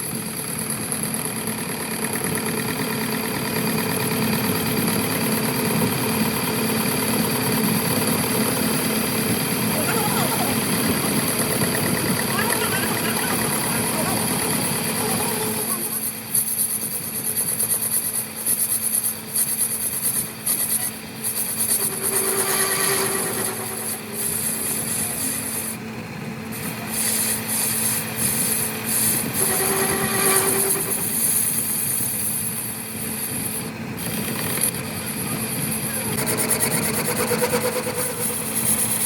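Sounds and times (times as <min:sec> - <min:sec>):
machine running: 0:00.0 - 0:39.0
tool scraping metal: 0:07.4 - 0:25.8, 0:26.5 - 0:39.0.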